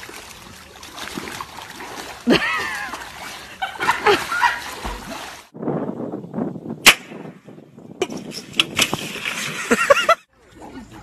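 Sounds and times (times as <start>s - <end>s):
water splashing: 0.0s - 5.6s.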